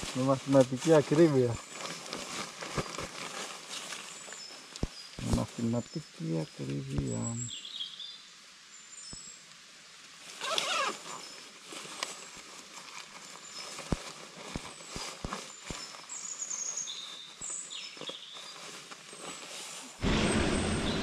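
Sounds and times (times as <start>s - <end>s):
small birds chirping: 0.0s - 9.5s, 12.9s - 19.5s.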